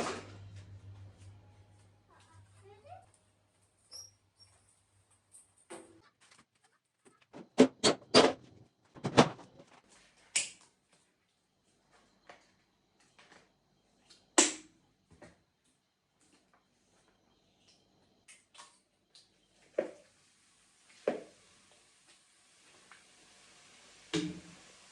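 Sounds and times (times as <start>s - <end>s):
objects knocking and clattering: 5.7s - 9.8s.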